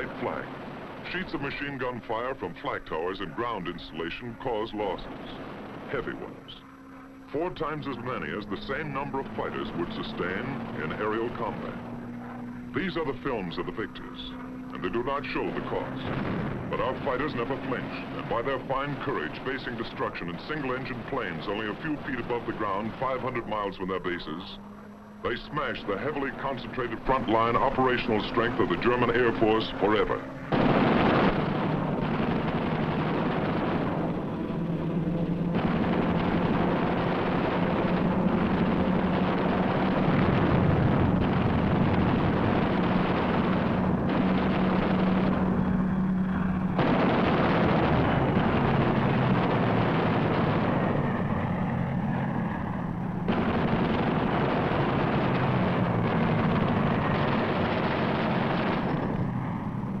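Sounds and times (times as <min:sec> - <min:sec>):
explosions: 0:00.0 - 0:06.6, 0:07.5 - 0:11.8, 0:14.7 - 0:24.6, 0:25.2 - 1:00.0
aircraft engines droning: 0:00.0 - 1:00.0
gunfire: 0:25.6 - 0:59.8.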